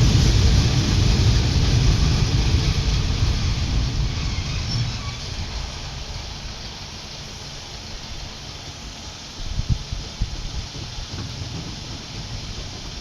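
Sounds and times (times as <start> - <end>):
train rumbling by: 0.0 - 13.0.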